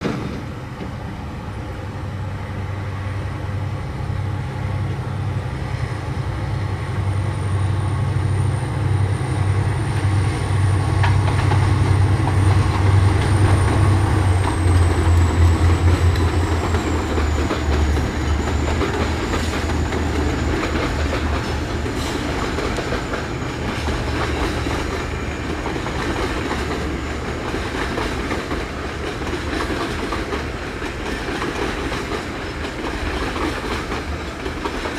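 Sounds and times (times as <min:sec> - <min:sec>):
diesel locomotive engines throbbing: 0:00.0 - 0:34.9
wheels clicking over rail joints: 0:10.9 - 0:34.9.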